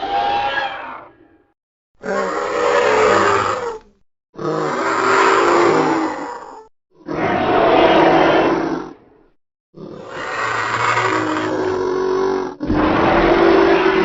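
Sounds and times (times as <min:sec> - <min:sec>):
creature roaring calls: 0:00.0 - 0:01.4, 0:02.0 - 0:03.8, 0:04.4 - 0:09.0, 0:09.8 - 0:14.0.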